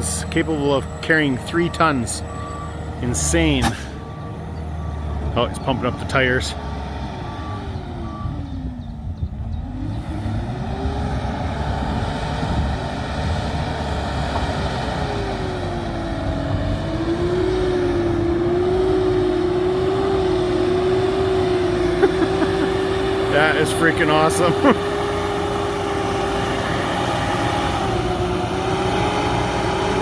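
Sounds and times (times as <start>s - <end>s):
truck engine running: 0.0s - 30.0s.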